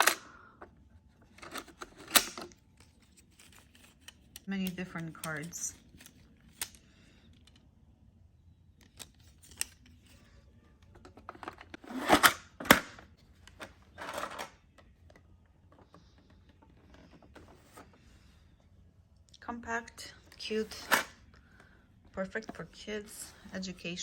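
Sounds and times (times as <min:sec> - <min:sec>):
plastic cards scraping and rustling: 0:01.2 - 0:07.6, 0:08.8 - 0:15.0, 0:15.7 - 0:18.5
plastic cards clicking: 0:01.4 - 0:07.6, 0:08.7 - 0:10.0.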